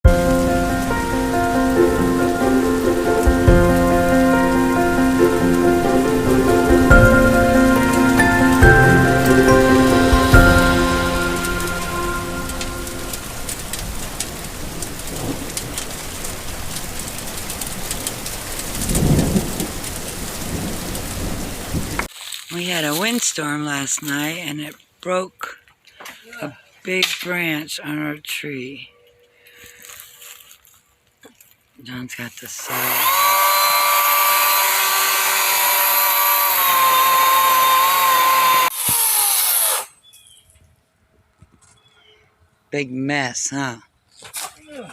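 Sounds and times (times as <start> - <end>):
music track: 0.0 - 14.7
low rumbles: 0.0 - 22.1
steady rain: 0.0 - 22.4, 32.8 - 38.7
raindrop ticks: 12.6 - 22.1
power saw cutting branch: 32.6 - 40.0.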